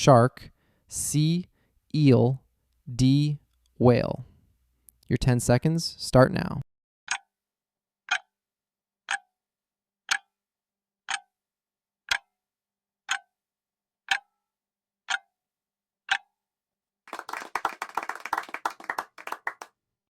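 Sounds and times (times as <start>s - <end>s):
clock ticking: 7.1s - 7.3s, 8.1s - 8.3s, 9.1s - 9.3s, 10.1s - 10.3s, 11.1s - 11.3s, 12.1s - 12.3s, 13.1s - 13.3s, 14.1s - 14.3s, 15.1s - 15.3s, 16.1s - 16.3s
people clapping: 17.1s - 19.7s.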